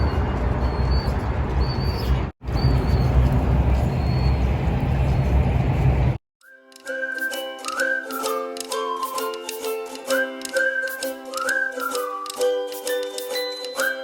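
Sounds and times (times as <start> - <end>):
bird chirping: 0.0 - 4.5
deep rumble: 0.0 - 6.2.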